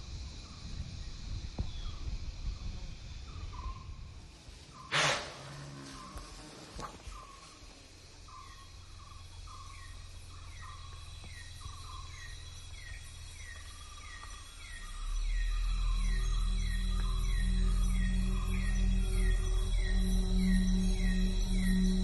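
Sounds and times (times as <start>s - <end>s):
steady high whine: 0.0s - 22.0s
low music drone: 8.8s - 22.0s.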